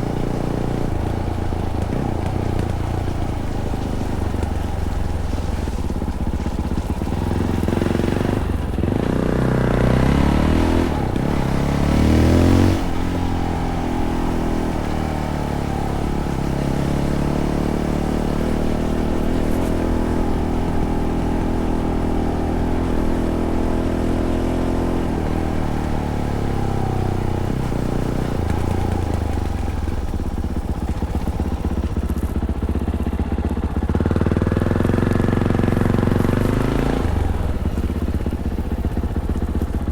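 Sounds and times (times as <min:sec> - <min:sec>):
motorcycle engine revving and cruising: 0:00.0 - 0:39.9.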